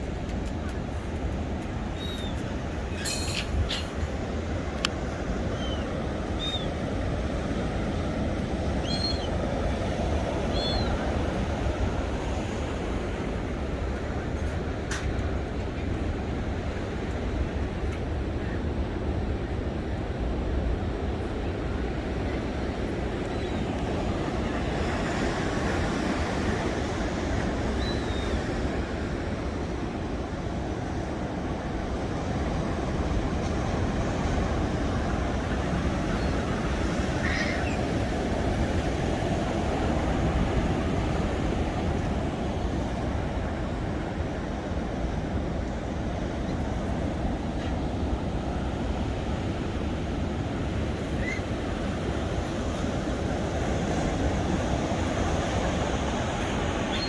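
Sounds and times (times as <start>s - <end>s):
faint high chirp: 2.0s - 4.0s, 8.8s - 9.3s
faint bird call: 37.2s - 37.8s, 51.1s - 51.5s, 56.4s - 57.0s.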